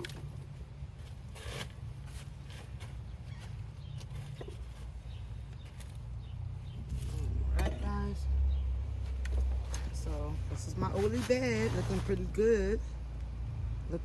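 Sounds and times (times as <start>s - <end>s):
scratchy rustle: 0.3s - 7.4s, 9.0s - 12.5s.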